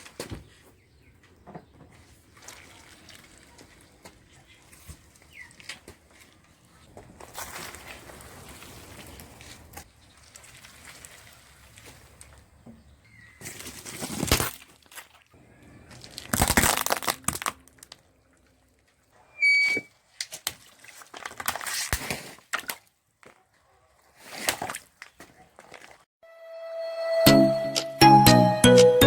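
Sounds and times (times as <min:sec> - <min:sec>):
tyres crushing objects: 0:13.4 - 0:18.2
short high squeak: 0:19.3 - 0:19.9.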